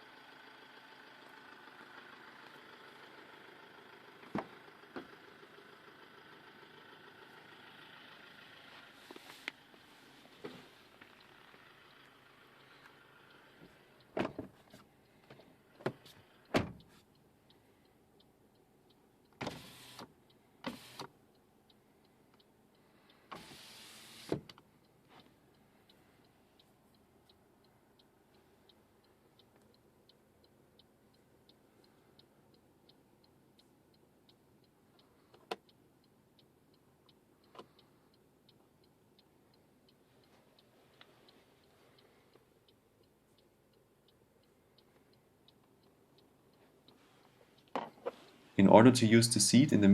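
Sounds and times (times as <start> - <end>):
short sliding or whirring sounds: 23.3 - 24.4
faint even ticking: 24.5 - 49.9.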